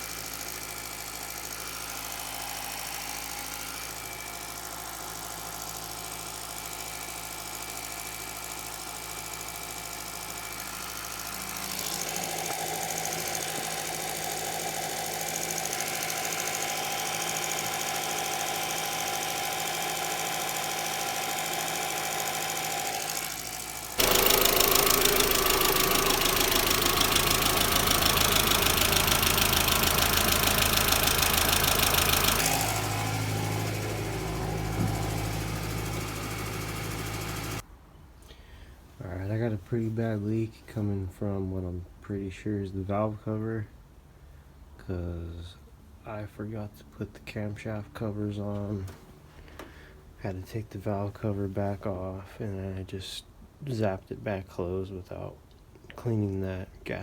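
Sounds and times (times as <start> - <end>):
car engine idling: 9.7 - 37.6.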